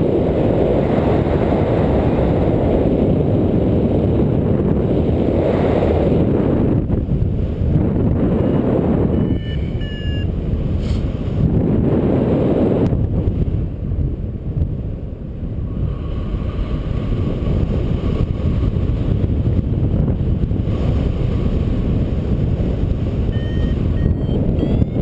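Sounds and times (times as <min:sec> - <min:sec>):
wind buffeting microphone: 0:00.0 - 0:25.0
variometer beeps rising in pitch: 0:08.4 - 0:10.3, 0:23.2 - 0:25.0.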